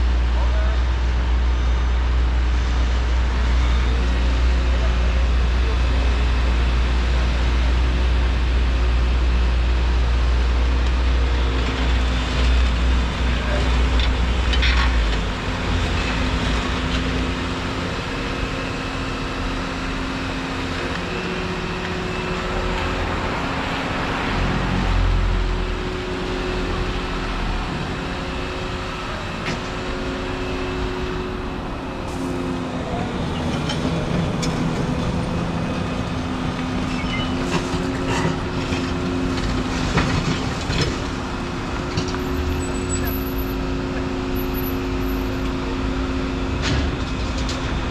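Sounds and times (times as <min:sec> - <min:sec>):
excavator diesel engine rumble: 0:00.0 - 0:47.9.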